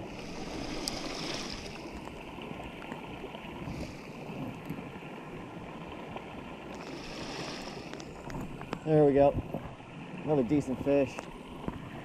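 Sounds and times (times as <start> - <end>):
flowing creek water: 0.0 - 12.0
wind noise: 3.5 - 5.0, 6.9 - 9.8.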